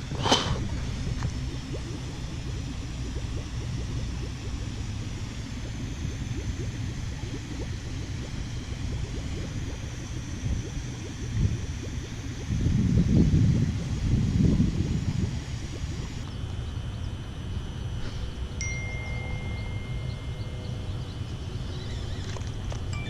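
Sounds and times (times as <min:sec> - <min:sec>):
wind buffeting microphone: 0:12.5 - 0:16.1.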